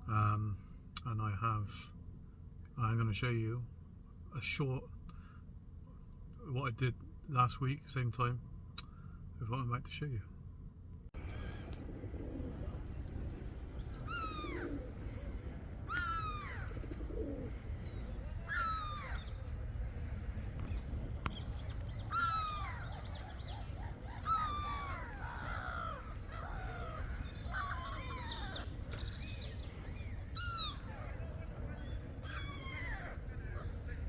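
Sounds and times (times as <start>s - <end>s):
low background rumble: 0.0s - 34.0s
gulls calling: 11.2s - 34.0s.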